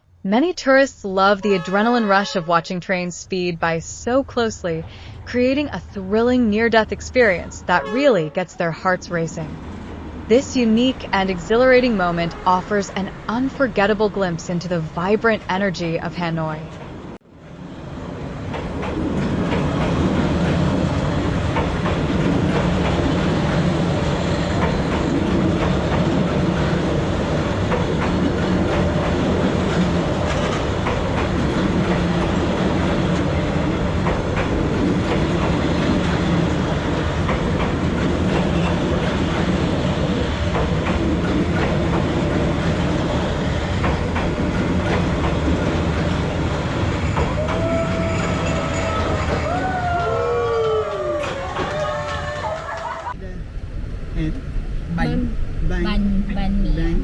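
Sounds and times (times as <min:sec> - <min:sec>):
train rumble: 0:00.0 - 0:57.0
train wheels clickety-clack: 0:18.3 - 0:52.9.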